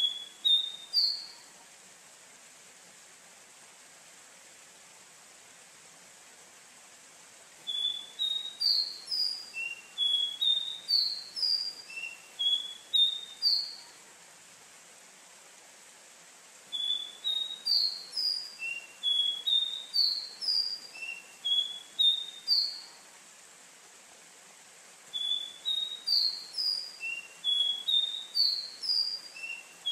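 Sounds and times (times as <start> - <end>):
bird singing whistled notes: 0.0 - 1.5, 7.6 - 13.9, 16.7 - 23.0, 25.1 - 29.9
faint steady hiss: 0.0 - 29.9.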